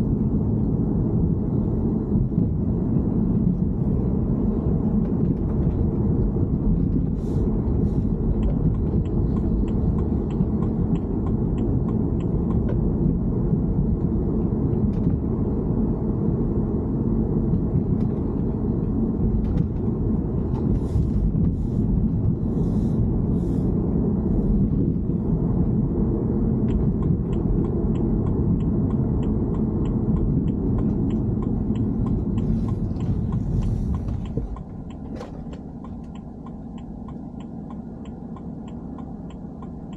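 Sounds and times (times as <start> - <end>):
car engine rumble: 0.0 - 39.9
faint light ticks: 8.2 - 12.9, 26.6 - 39.9.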